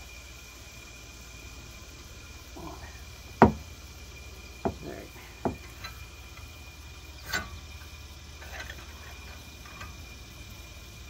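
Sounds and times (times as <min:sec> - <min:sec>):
faint high whine: 0:00.0 - 0:11.0
steady low hum: 0:00.0 - 0:11.0
wrench clicking metallically: 0:05.6 - 0:10.4.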